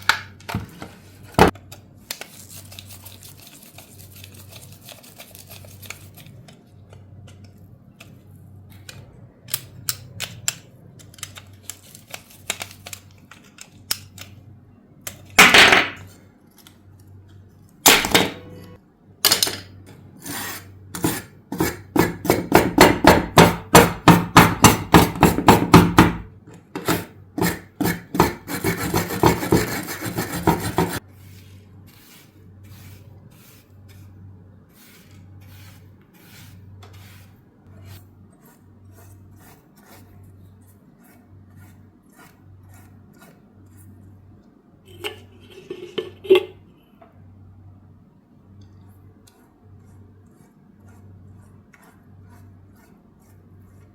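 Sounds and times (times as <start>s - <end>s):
tool scraping metal: 26.8s - 31.0s.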